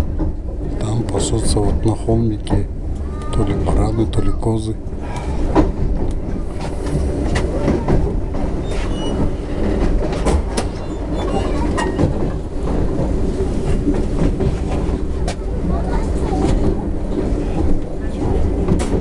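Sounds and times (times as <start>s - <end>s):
train rumbling: 0.0s - 19.0s
train wheels clacking: 5.0s - 19.0s.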